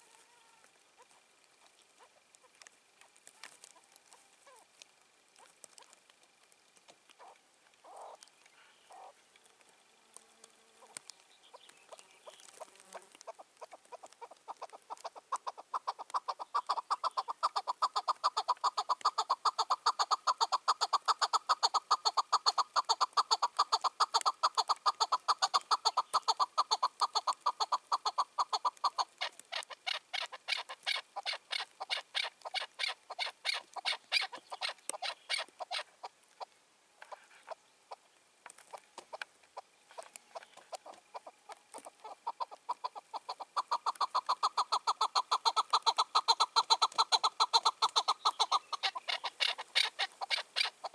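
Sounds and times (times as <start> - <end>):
partridge calling chuck notes: 38.7 - 50.9.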